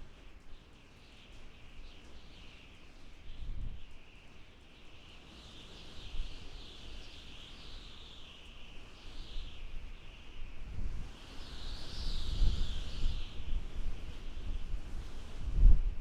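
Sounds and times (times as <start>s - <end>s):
low wind gusts rumbling: 10.4s - 16.0s.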